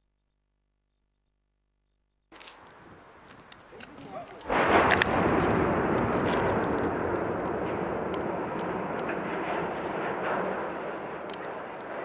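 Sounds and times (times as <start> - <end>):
sharp cracks: 3.4 - 12.0
rumble of tower collapsing: 4.4 - 12.0.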